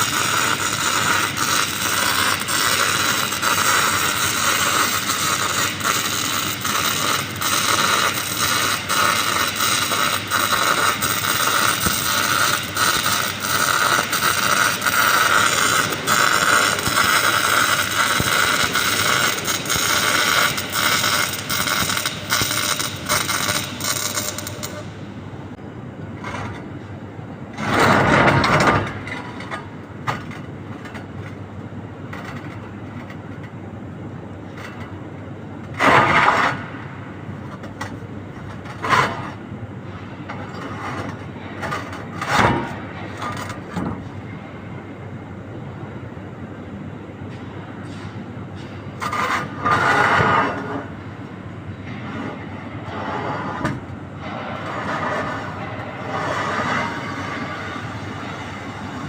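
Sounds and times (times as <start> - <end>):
arc welding crackle: 0.0 - 25.0
loud burst of noise: 0.0 - 25.1.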